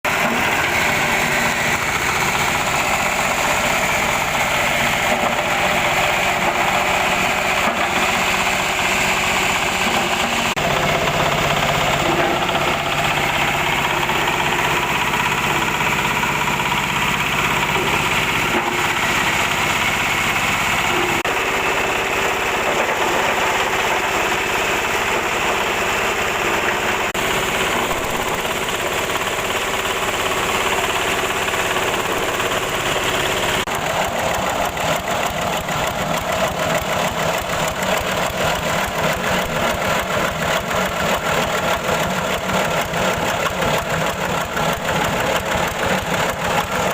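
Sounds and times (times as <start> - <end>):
grinder milling corn: 0.0 - 46.9.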